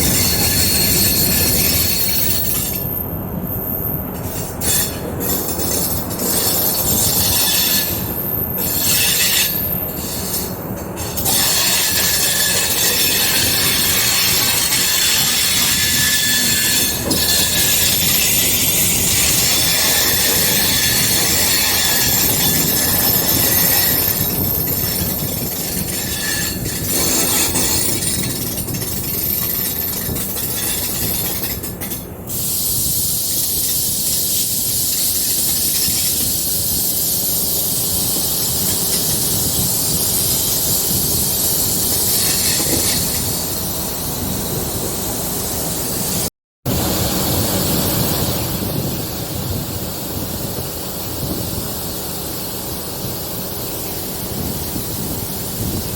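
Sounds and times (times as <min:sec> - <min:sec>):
train wheels on rails: 0:00.0 - 0:55.9.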